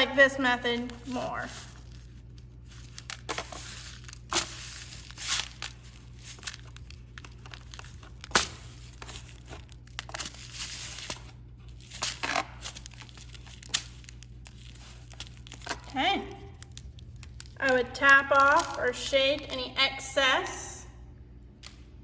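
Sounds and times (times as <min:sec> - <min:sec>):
bird seed rustling in a pan: 0:00.9 - 0:15.8.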